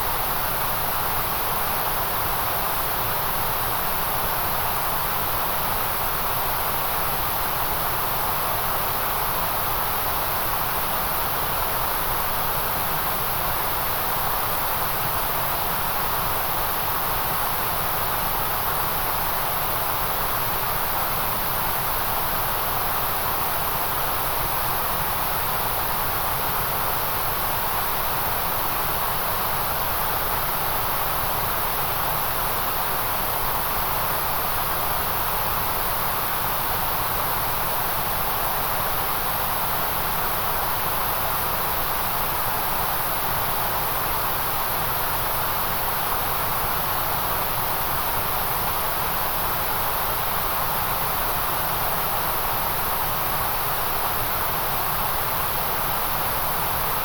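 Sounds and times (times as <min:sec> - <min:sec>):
white noise hiss: 0:00.0 - 0:57.0.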